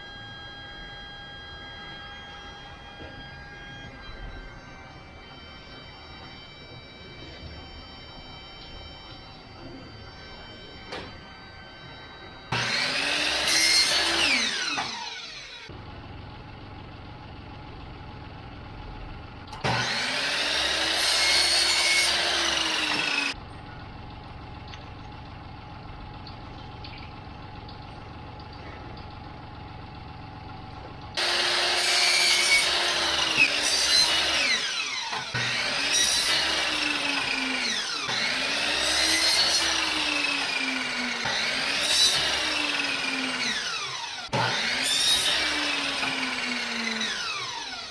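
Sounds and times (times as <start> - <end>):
power tool cutting wood: 0.0 - 15.8, 19.6 - 23.4, 31.2 - 47.9.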